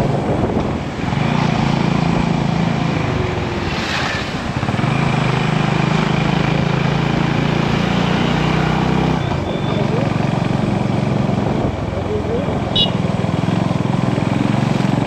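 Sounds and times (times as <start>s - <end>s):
wind on microphone: 0.0s - 5.6s
motorcycle engine running: 9.4s - 15.0s.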